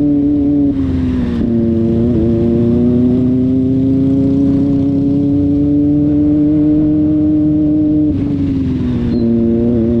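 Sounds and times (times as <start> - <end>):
motorcycle engine at high revs: 0.0 - 10.0.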